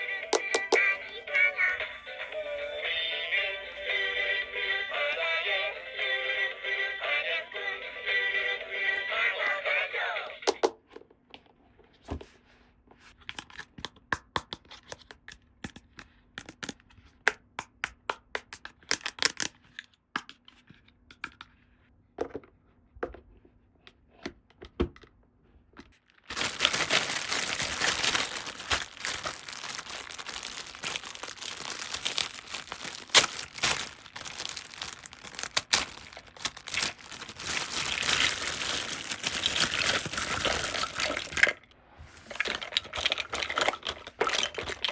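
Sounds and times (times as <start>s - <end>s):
plastic packaging crackling: 0.3s - 0.9s, 26.2s - 44.9s
plastic wrap crinkling and tearing: 26.2s - 44.9s.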